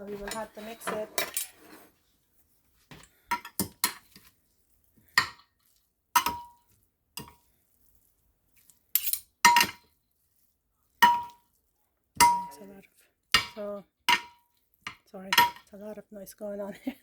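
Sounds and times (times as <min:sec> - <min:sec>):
utensil clinking against a dish: 0:02.9 - 0:04.3, 0:06.2 - 0:07.5, 0:09.0 - 0:10.0, 0:11.0 - 0:11.6, 0:12.2 - 0:12.7, 0:13.4 - 0:15.7.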